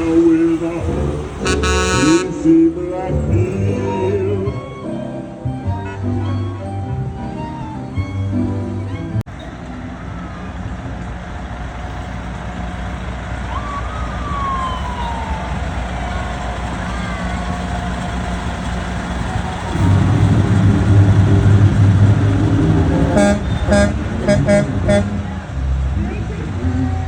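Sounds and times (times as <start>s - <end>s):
loud truck engine rumble: 0.0s - 27.0s
truck engines running: 0.0s - 27.0s
falling siren tone: 13.5s - 17.9s.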